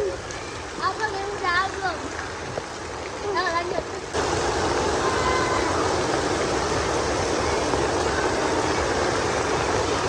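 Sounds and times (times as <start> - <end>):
heavy rain hissing: 4.1 - 10.0.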